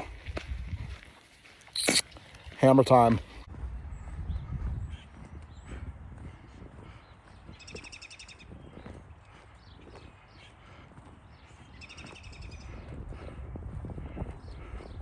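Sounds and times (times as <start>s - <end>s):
running footsteps: 0.0s - 15.0s.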